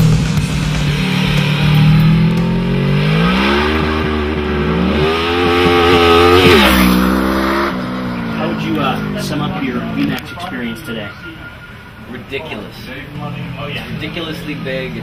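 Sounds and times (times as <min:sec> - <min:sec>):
motorcycle engine accelerating: 0:00.0 - 0:10.4.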